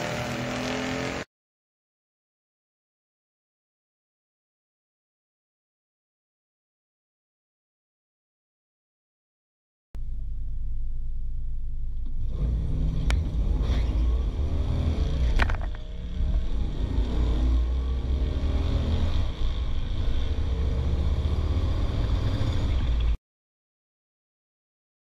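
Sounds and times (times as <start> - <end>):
race car engine at full throttle: 0.0 - 1.3, 11.9 - 23.2.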